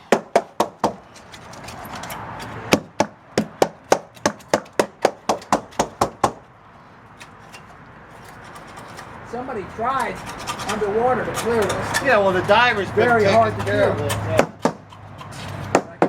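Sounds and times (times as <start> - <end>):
hand tool tapping boat hull: 0.1 - 1.0, 2.7 - 6.4, 13.2 - 15.0.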